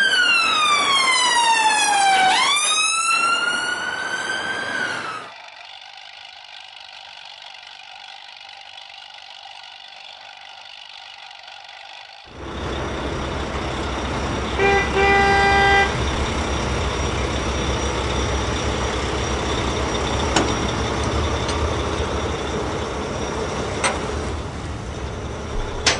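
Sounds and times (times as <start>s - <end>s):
steady rumbling noise: 12.3s - 25.9s
vehicle horn tooting: 14.6s - 16.0s.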